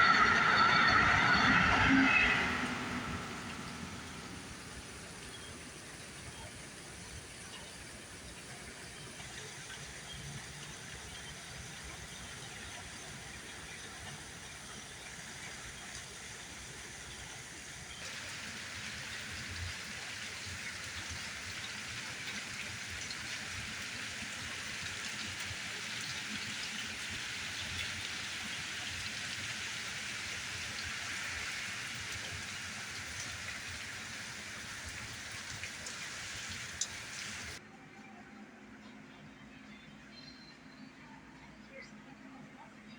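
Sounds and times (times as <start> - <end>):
heavy rain pouring: 0.0 - 7.2, 17.9 - 37.6.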